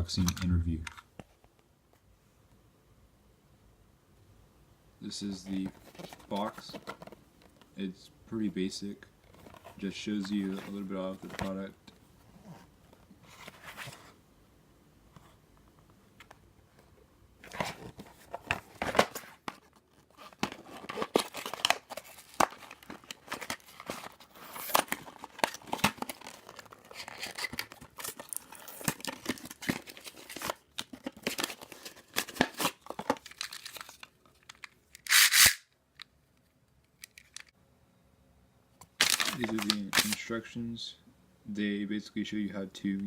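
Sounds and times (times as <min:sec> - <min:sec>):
plastic packaging crinkling: 0:17.5 - 0:35.6, 0:39.0 - 0:40.3
cardboard box being torn open: 0:39.0 - 0:40.1.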